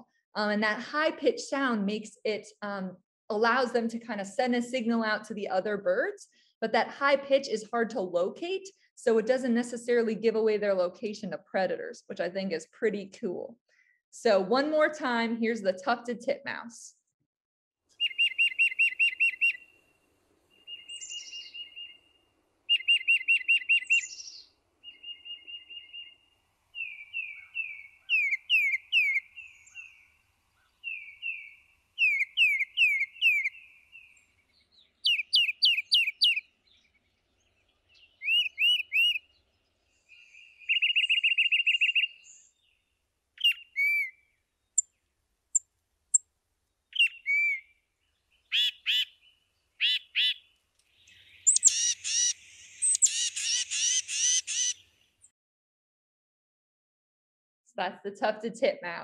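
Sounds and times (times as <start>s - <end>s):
bird whistled song: 17.9s - 19.7s, 20.6s - 22.1s, 22.7s - 26.2s, 26.8s - 37.0s, 37.9s - 39.3s, 40.1s - 42.8s, 43.4s - 45.0s, 46.9s - 50.4s, 51.0s - 54.8s.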